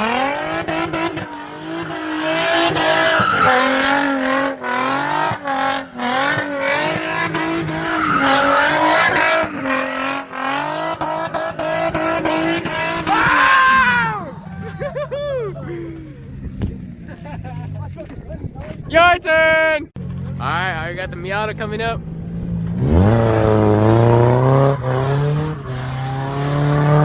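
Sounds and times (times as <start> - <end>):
car engine revving high: 0.0 - 14.4, 21.0 - 27.0
tires squealing: 0.0 - 17.4, 18.7 - 27.0.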